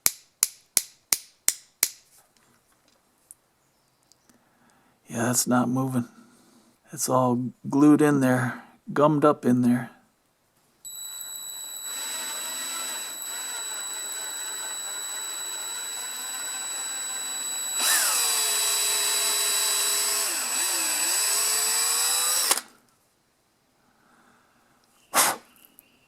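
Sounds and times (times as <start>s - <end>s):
electric drill whining: 10.9s - 22.8s.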